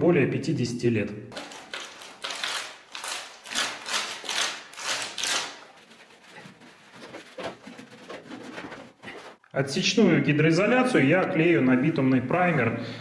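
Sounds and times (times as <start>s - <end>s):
brush scrubbing concrete: 3.6s - 9.4s.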